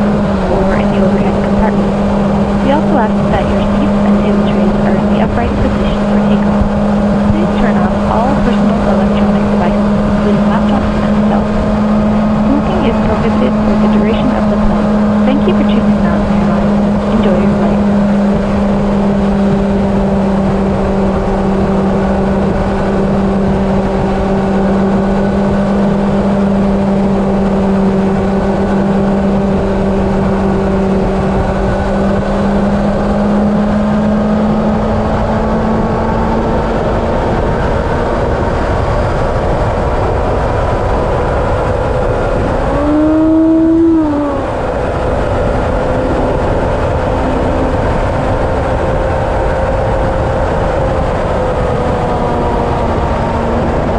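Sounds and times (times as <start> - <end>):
engine droning: 0.0 - 53.9
rising tone: 40.7 - 49.8.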